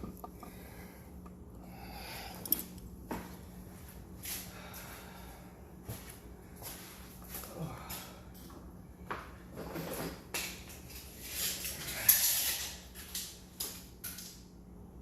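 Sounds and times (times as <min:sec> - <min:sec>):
tools clicking and knocking: 0:00.0 - 0:00.6.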